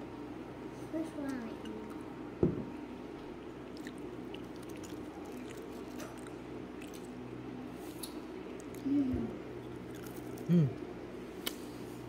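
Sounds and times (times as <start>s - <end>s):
steady low hum: 0.0s - 12.0s
person chewing food: 3.7s - 8.9s, 9.6s - 10.6s.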